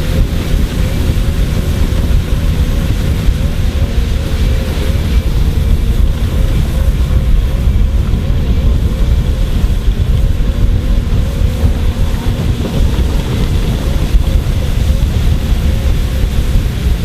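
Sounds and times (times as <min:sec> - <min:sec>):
heavy diesel machinery rumbling: 0:00.0 - 0:17.0
wavering machine whine: 0:00.0 - 0:17.0.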